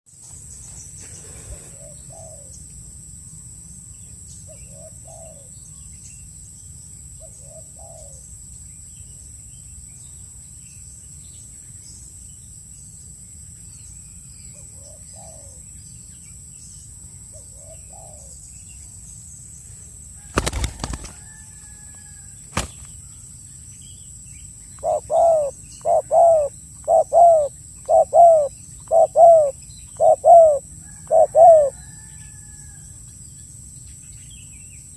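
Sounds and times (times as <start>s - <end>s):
high insect drone: 0.1s - 34.9s
wings flapping: 20.3s - 21.4s, 22.5s - 22.9s
doves cooing: 24.8s - 31.8s.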